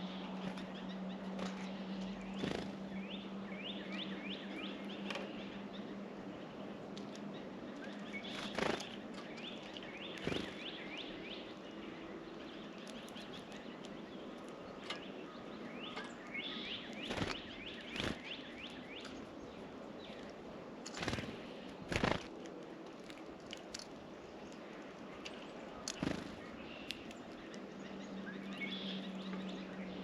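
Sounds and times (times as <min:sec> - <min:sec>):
songbirds chirping: 0:00.0 - 0:30.0
steady outdoor hiss: 0:00.0 - 0:30.0.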